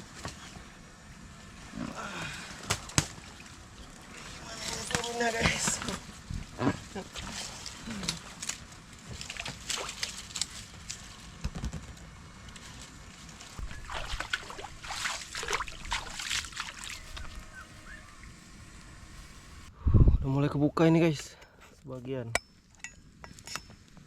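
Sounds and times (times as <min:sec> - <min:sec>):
water sloshing and splashing: 0:07.0 - 0:10.8, 0:13.3 - 0:17.6.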